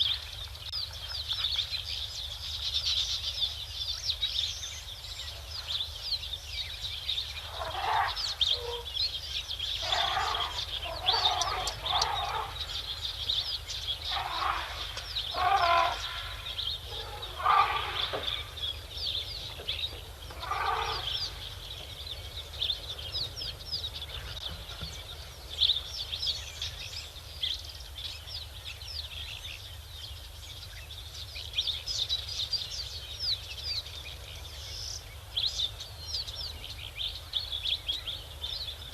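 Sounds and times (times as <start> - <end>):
high-pitched chirping chorus: 7.3 - 21.6
harsh animal calls: 7.4 - 8.9, 9.8 - 13.1, 14.0 - 18.6, 20.3 - 21.5.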